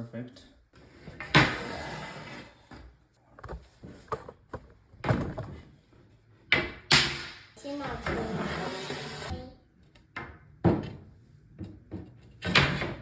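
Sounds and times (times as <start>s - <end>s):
wood sliding and scraping: 0.8s - 4.4s, 8.0s - 9.3s.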